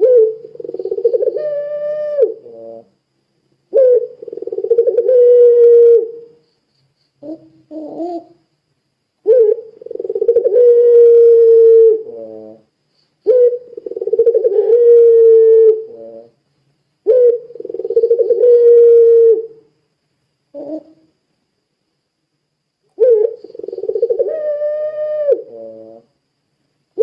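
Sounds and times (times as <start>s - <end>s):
dove cooing: 0.0s - 3.0s, 3.7s - 6.4s, 7.2s - 8.4s, 9.2s - 16.4s, 17.1s - 19.7s, 20.5s - 21.1s, 23.0s - 26.1s.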